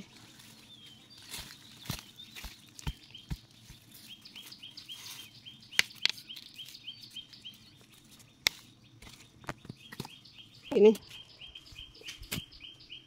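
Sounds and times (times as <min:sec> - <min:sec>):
bird chirping rapidly: 0:00.7 - 0:13.0.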